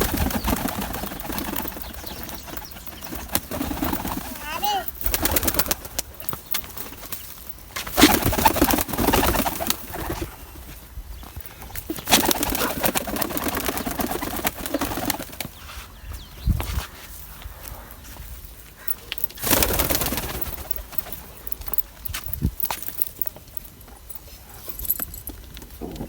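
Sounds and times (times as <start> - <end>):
pigeons cooing: 0.0 - 6.4, 11.8 - 15.5, 25.7 - 26.0.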